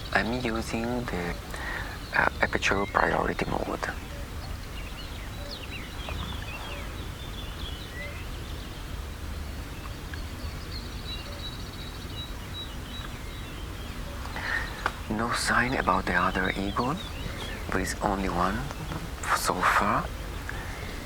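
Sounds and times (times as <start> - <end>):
small birds chirping: 0.0 - 21.0
low rumble: 3.9 - 10.9.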